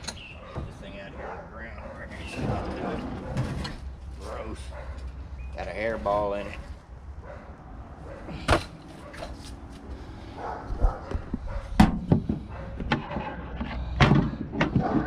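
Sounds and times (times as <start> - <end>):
steady low rumble: 9.6 - 14.6
sheet metal knocks and clanks: 11.7 - 15.0.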